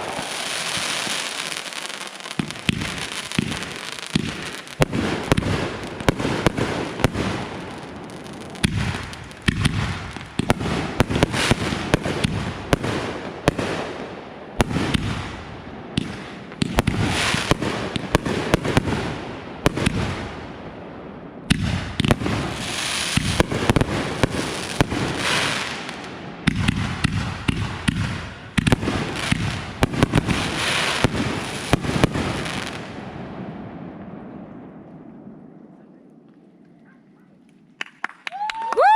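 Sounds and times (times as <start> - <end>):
fireworks crackle: 0.0 - 13.6, 21.5 - 33.0
fireworks bangs: 0.0 - 20.7, 21.4 - 35.8.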